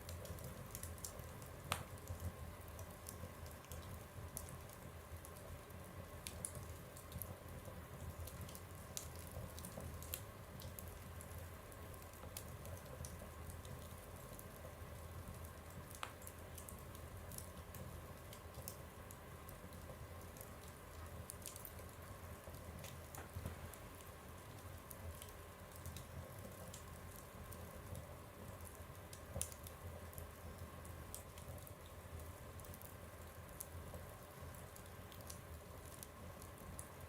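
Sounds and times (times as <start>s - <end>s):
wood fire crackling in a stove: 0.0s - 37.0s.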